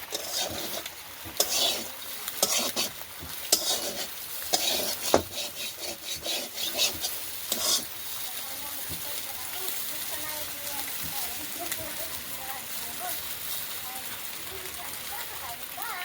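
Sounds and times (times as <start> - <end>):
spatula scraping and knocking pan: 0.0 - 9.6, 10.7 - 11.8
fish sizzling in a pan: 0.0 - 16.0.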